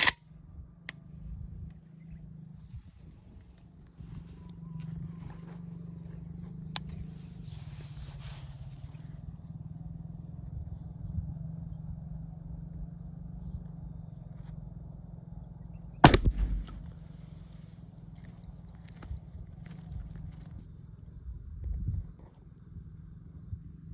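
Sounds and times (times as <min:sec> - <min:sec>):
rifle shot with echo: 0:16.0 - 0:17.3.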